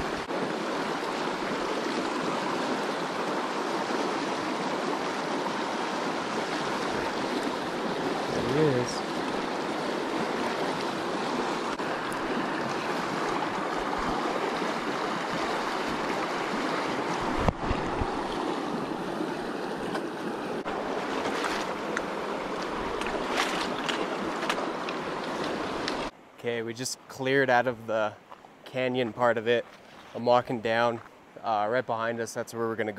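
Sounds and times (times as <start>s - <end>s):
creek water rushing over rocks: 0.0s - 26.2s.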